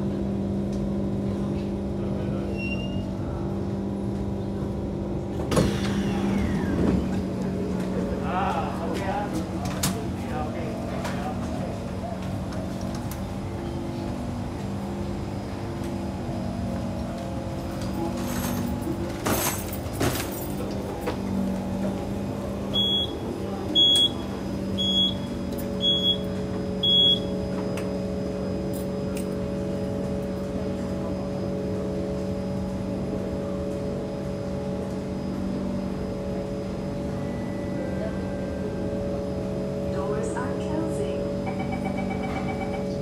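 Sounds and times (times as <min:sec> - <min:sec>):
train interior hum: 0:00.0 - 0:43.0
door warning beeps: 0:22.7 - 0:27.4, 0:41.4 - 0:43.0.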